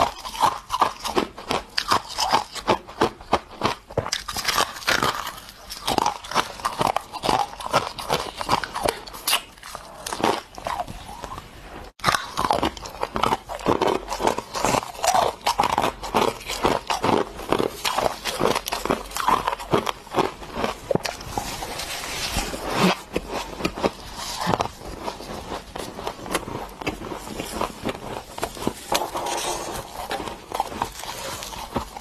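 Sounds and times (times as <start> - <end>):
ice being chewed: 0.0 - 32.0.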